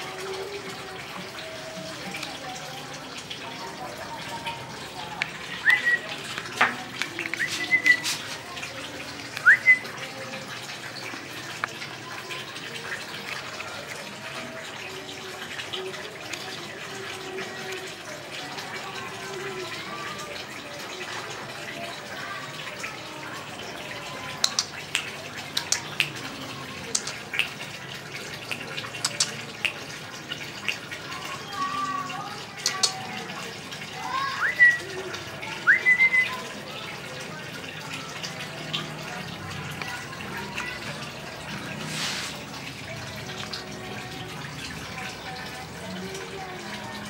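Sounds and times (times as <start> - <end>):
sharp clicks: 24.4 - 26.2.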